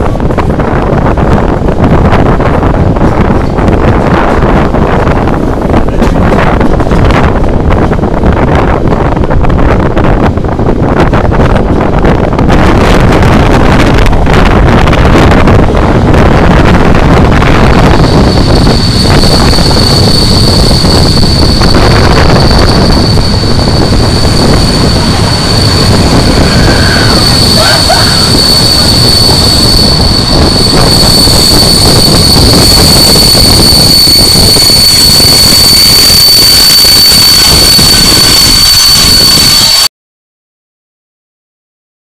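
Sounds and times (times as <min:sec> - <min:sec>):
wind noise: 0:00.0 - 0:39.9
wheels on rails: 0:11.6 - 0:39.9
steady high whine: 0:13.5 - 0:39.9.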